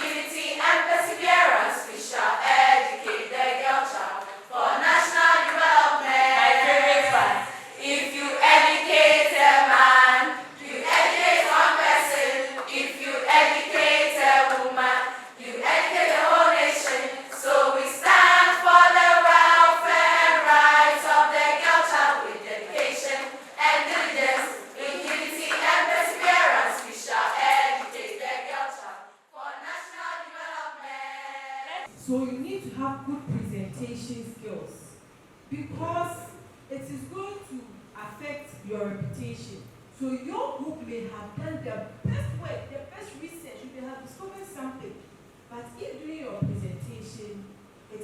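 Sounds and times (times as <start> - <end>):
choir singing: 0.0 - 31.9.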